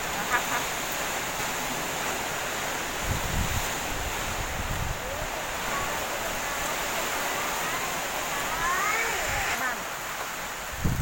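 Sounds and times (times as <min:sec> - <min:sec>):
heavy rain: 0:00.0 - 0:11.0
wind gusts buffeting microphone: 0:00.8 - 0:09.6, 0:10.3 - 0:11.0.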